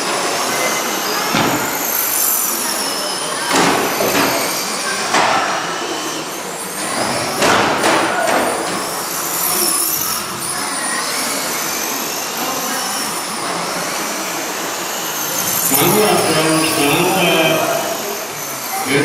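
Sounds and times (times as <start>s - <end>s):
toy truck motors whining: 8.5s - 19.0s.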